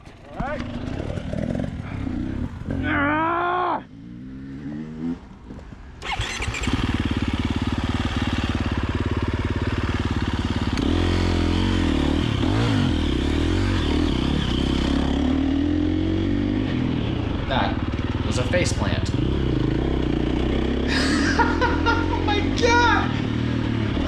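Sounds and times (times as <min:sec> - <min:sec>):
dirt bike engine starting and idling: 0:00.0 - 0:02.8, 0:05.9 - 0:24.0
engine throttle blips: 0:06.0 - 0:07.0.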